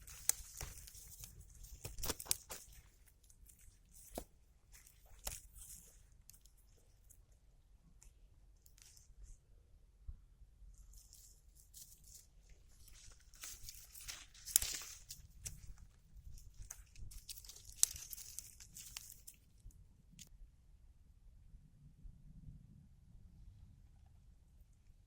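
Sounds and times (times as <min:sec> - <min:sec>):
plants rustling and crinkling: 0:00.0 - 0:07.2, 0:10.9 - 0:19.7.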